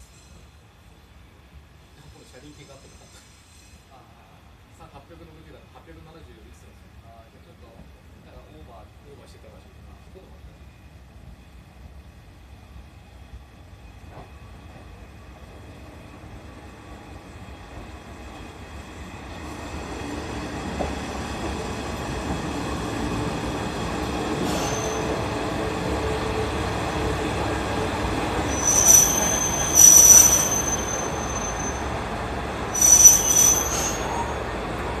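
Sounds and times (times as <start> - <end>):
railcar engine rumble: 0.0 - 35.0
high-pitched metallic squeals: 24.4 - 25.2, 28.5 - 31.9, 32.7 - 34.5.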